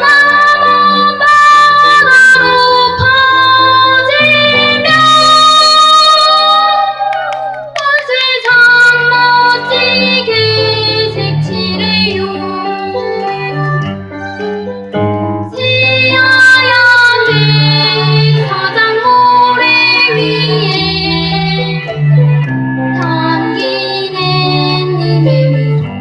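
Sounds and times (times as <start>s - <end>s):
child singing: 0.0s - 7.2s, 7.8s - 13.8s, 15.6s - 21.9s, 23.0s - 25.9s
keyboard accompaniment: 0.0s - 26.0s.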